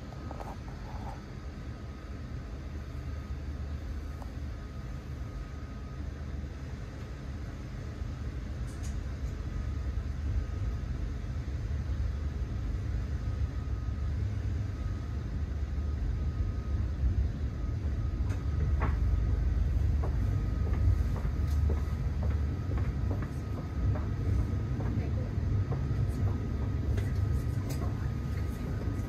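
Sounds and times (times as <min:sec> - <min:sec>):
train coach rumble: 0:11.7 - 0:29.0.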